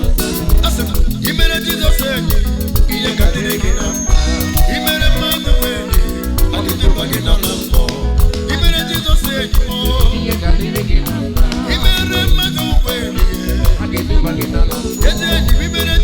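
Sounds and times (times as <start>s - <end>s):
live band playing upbeat music: 0.0s - 16.0s
person singing: 0.0s - 16.0s.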